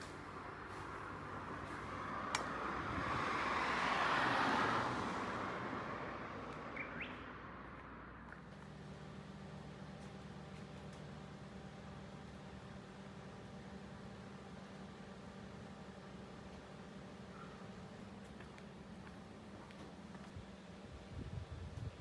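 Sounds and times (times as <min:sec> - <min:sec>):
car passing by: 0:01.6 - 0:08.0.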